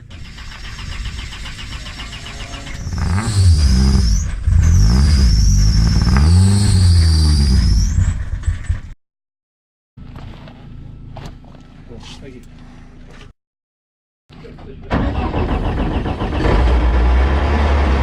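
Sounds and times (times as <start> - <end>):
car engine revving: 0.6 - 8.7, 15.0 - 18.0
high wavering squeal: 1.8 - 8.3.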